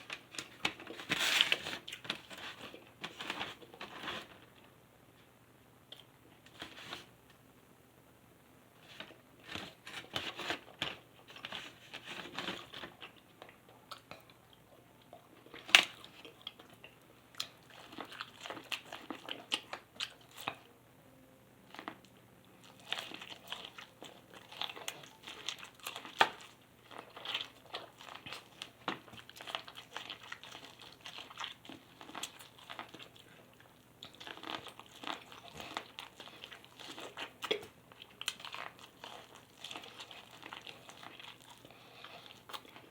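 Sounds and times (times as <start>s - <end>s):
person chewing food: 10.5s - 20.7s, 21.7s - 42.9s.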